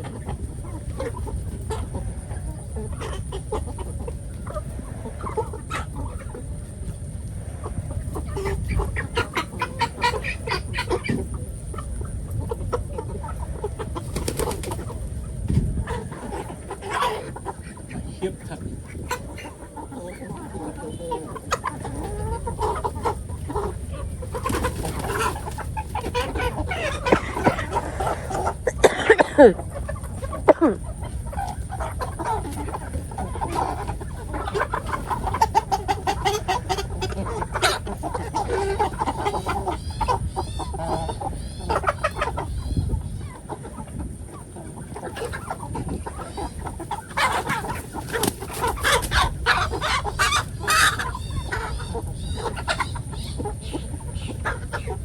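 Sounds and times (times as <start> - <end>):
chickens clucking and squawking: 0.0 - 55.0.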